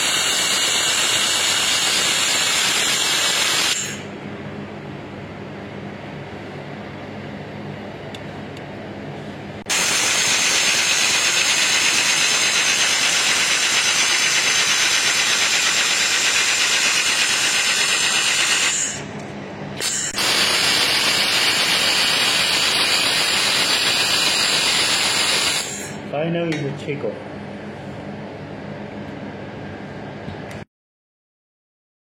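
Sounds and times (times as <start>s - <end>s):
loud welding hiss: 0.0s - 4.1s, 9.7s - 19.1s, 19.8s - 26.0s
low machine hum: 3.8s - 30.6s.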